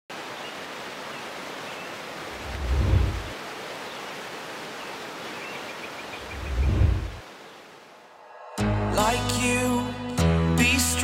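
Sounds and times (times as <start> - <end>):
waterfall rushing: 0.1 - 9.6
deep low rumbling: 2.4 - 3.3, 6.4 - 7.2.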